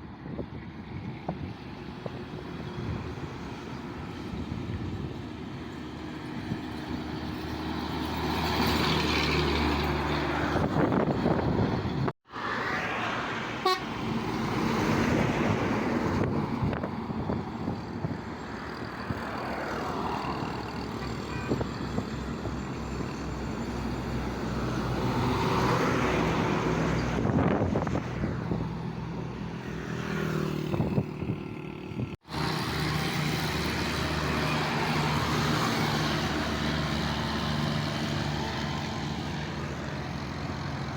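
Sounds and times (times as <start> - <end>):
truck engines running: 0.0 - 40.9
vehicles passing: 0.0 - 40.9
horn toots: 13.6 - 14.0.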